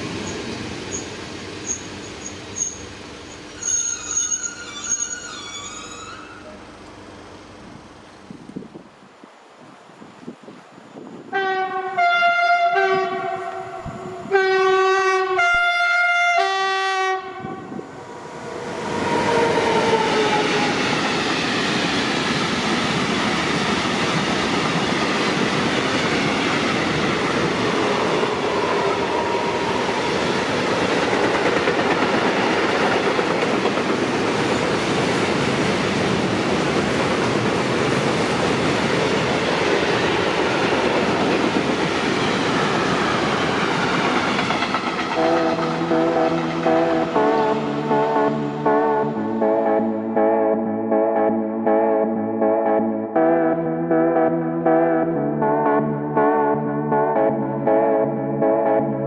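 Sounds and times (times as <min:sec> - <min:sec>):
train passing on rails: 0:00.0 - 0:50.6
two-tone train horn blasts: 0:11.3 - 0:17.9, 0:45.1 - 0:49.7.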